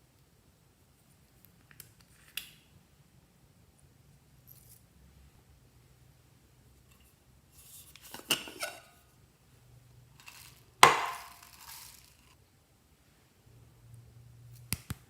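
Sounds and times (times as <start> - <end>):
hard objects clinking: 10.2 - 12.4.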